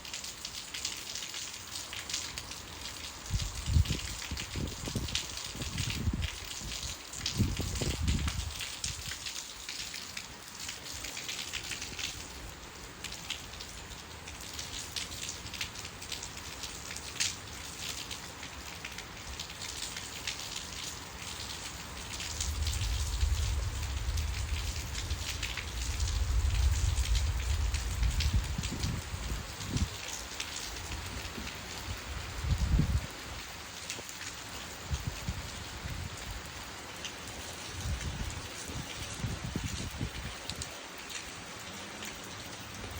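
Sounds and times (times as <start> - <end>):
drops and drips: 0.0 - 42.9
rain falling: 0.0 - 42.9
low rumble: 22.2 - 29.4.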